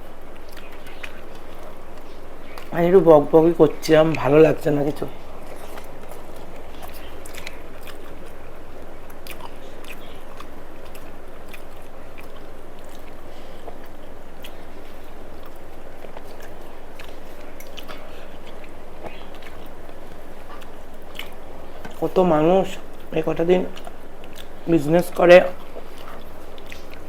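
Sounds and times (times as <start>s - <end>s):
low hum: 0.0s - 27.0s
mouth clicks: 0.0s - 27.0s
person chewing crunchy food: 0.0s - 27.0s.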